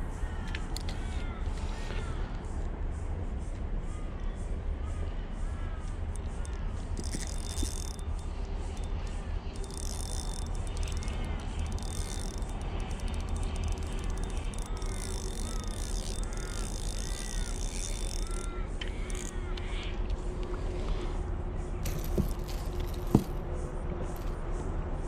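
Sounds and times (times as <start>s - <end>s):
insects buzzing: 6.1s - 20.3s.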